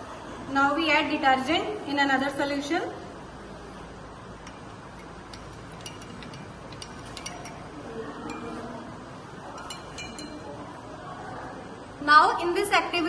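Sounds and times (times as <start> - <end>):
spoon clinking against glass: 4.4 - 8.8, 9.4 - 10.6.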